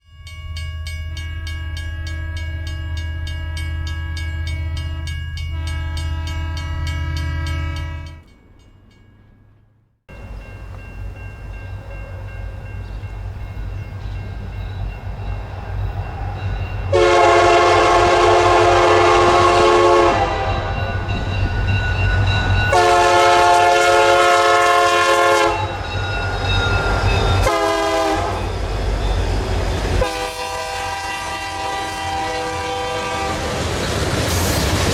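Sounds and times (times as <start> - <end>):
train drone with held tone: 0.0 - 34.9
diesel train rumble: 0.3 - 34.9
locomotive air horn blasts: 3.4 - 8.2, 16.9 - 21.0, 22.7 - 25.8, 27.4 - 28.5, 30.0 - 33.6.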